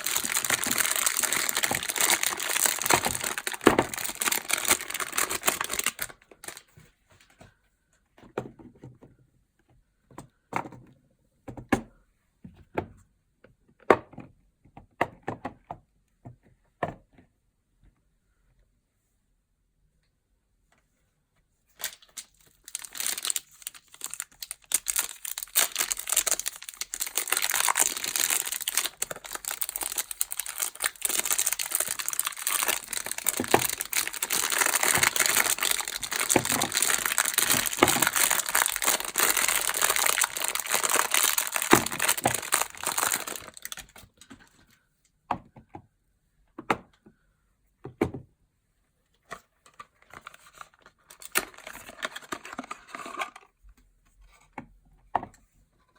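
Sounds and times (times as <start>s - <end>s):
packaging crinkling and tearing: 0.0s - 6.8s, 21.8s - 44.1s, 50.0s - 53.4s.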